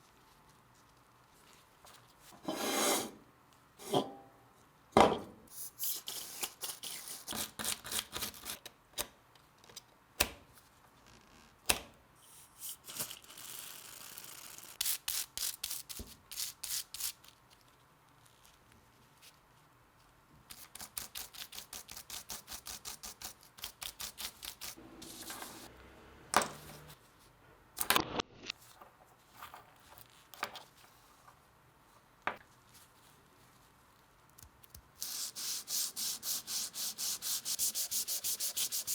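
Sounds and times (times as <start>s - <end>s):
scrubbing or sanding strokes: 35.1s - 38.9s.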